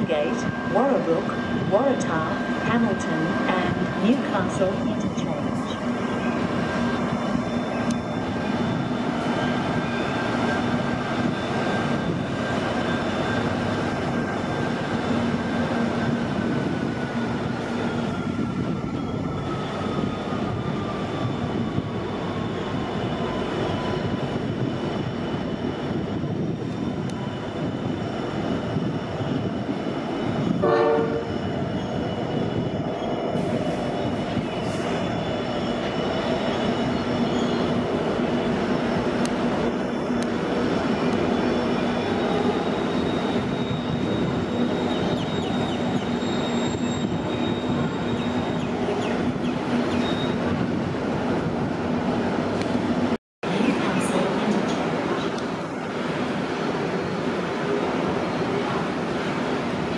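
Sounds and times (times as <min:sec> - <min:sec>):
freight train rumbling on rails: 0:00.0 - 0:59.9
train horn blast: 0:30.6 - 0:31.3.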